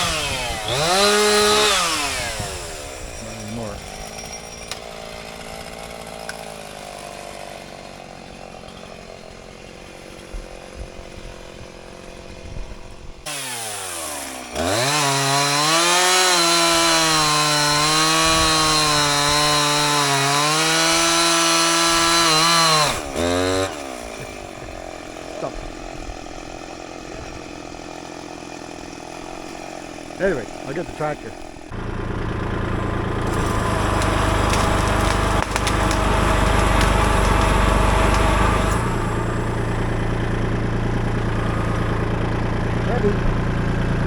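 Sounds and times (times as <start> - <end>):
chainsaw idling and revving: 0.0 - 44.0.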